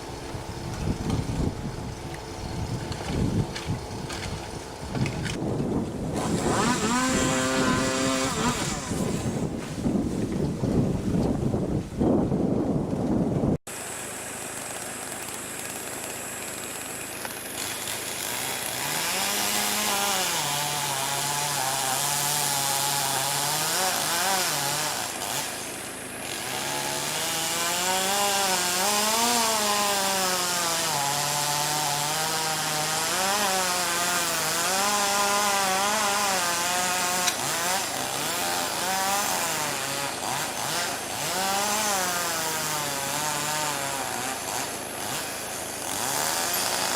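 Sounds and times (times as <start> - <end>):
chainsaw revving: 6.2 - 9.5, 13.7 - 46.9.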